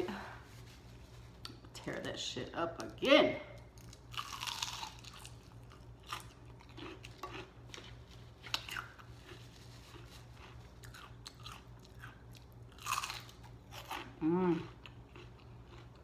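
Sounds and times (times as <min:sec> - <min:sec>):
crunchy bite: 0:03.8 - 0:07.5
crunchy chewing: 0:03.8 - 0:16.0.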